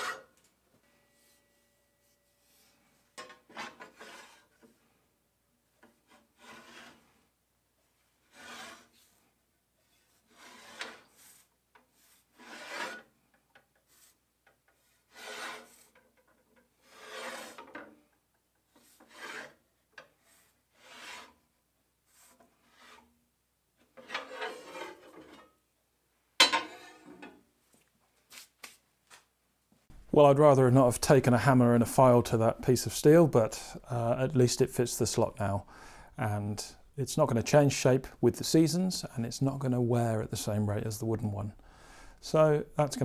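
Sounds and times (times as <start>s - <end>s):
file strokes on steel bar: 0.0s - 0.3s, 0.9s - 4.9s, 5.8s - 7.4s, 8.0s - 13.2s, 13.8s - 16.0s, 16.8s - 17.9s, 18.7s - 23.2s, 24.0s - 25.6s.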